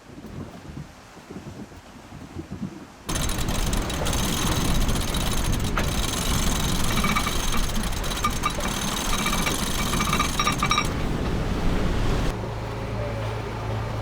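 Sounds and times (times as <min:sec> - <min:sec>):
boat motor rattling: 0:03.1 - 0:14.0.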